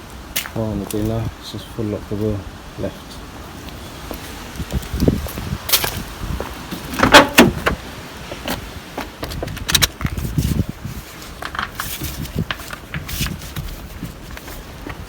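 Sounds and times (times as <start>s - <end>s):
car wheel clunks and knocks: 6.7s - 7.8s.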